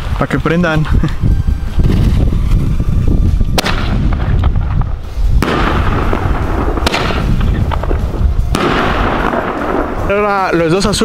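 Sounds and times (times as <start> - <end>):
wind rumbling on microphone: 0.0 - 11.0
firework shell reports: 3.6 - 11.0.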